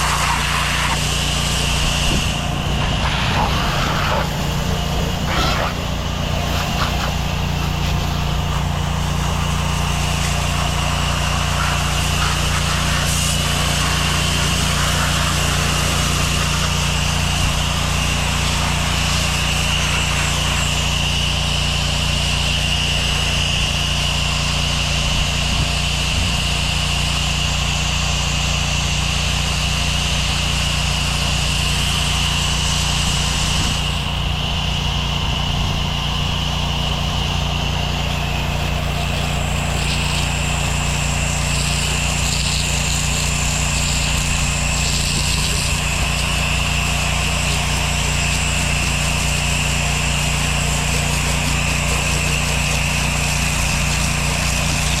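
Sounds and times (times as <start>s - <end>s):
high whine: 0.0s - 10.8s
water spray hiss: 0.0s - 20.8s, 37.2s - 55.0s
pressure washer engine droning: 0.0s - 55.0s.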